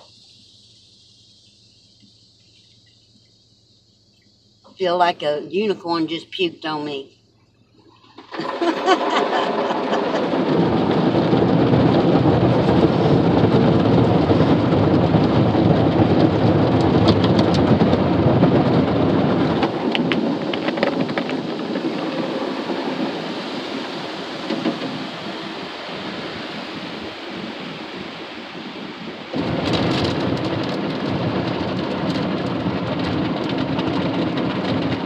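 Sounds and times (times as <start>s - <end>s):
water spray drumming on vehicle: 7.9s - 35.0s.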